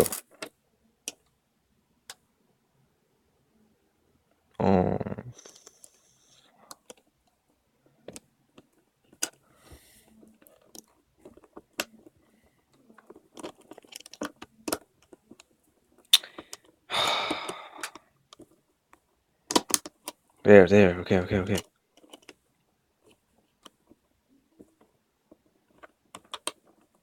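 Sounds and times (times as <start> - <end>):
plastic puzzle cube clicks: 19.5 - 20.2, 25.8 - 26.6
sharp plastic snaps: 19.5 - 20.2.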